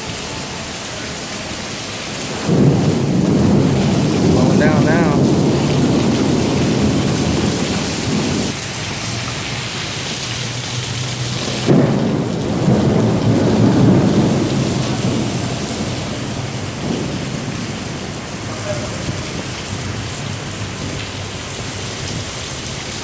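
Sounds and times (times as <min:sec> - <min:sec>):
rain beating on a car: 0:00.0 - 0:23.0.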